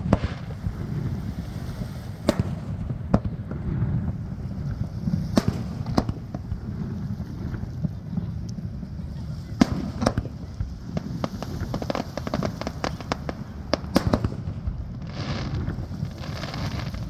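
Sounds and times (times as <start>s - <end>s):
firework shells bursting: 0.0s - 7.6s
low rumble: 0.0s - 17.0s.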